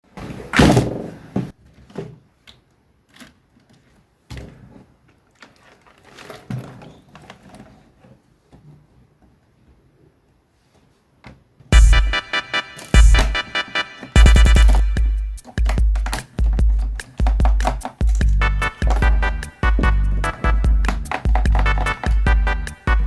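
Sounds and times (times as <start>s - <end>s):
keyboard handling clicks and knocks: 12.8s - 22.9s.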